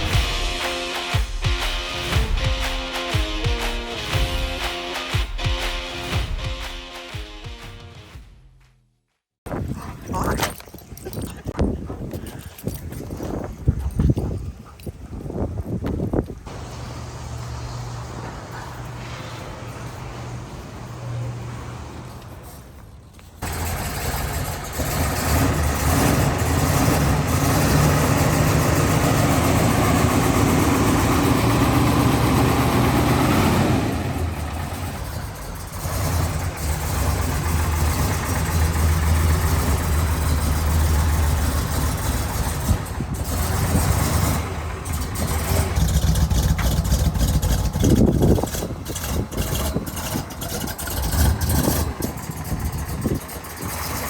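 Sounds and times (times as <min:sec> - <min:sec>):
car engine revving: 0:23.4 - 0:54.0.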